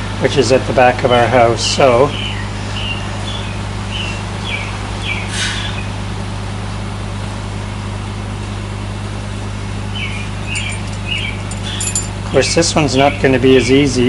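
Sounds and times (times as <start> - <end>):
low engine drone of machinery: 0.0 - 14.0.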